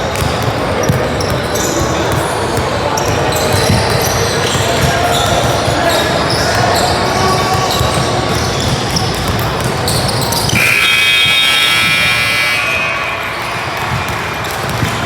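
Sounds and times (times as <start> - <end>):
crowd noise: 0.0 - 15.0
basketball bouncing: 0.1 - 5.8, 7.5 - 15.0
scoreboard buzzer: 10.6 - 14.2.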